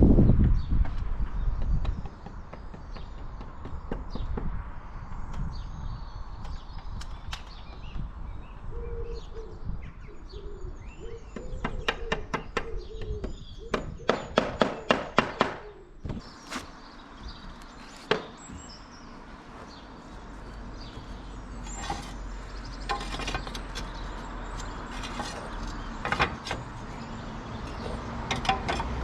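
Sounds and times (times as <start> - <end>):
birds chirping: 0.2 - 29.0
pigeon cooing: 8.7 - 13.7.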